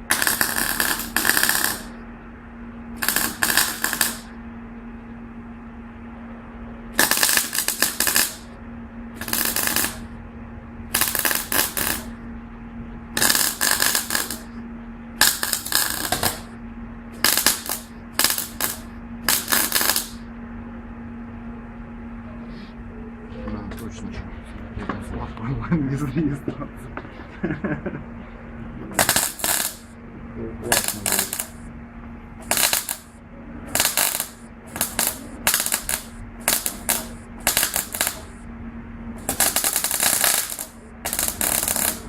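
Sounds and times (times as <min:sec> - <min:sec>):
low hum: 0:00.0 - 0:42.0
rapid mechanical rattling: 0:03.0 - 0:04.3, 0:30.7 - 0:31.6, 0:33.7 - 0:38.4.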